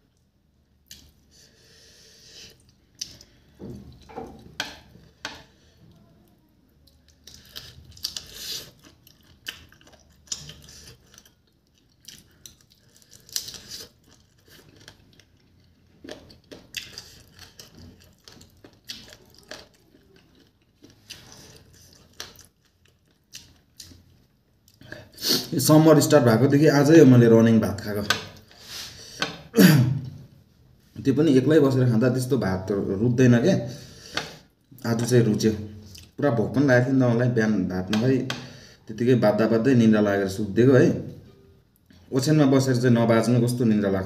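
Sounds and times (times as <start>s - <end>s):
chewing and biting: 6.9s - 24.1s.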